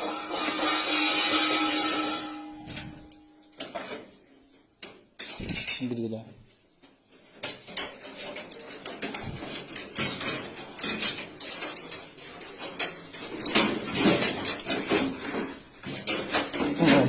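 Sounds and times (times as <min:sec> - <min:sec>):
hard objects knocking and clinking: 0:07.3 - 0:17.0.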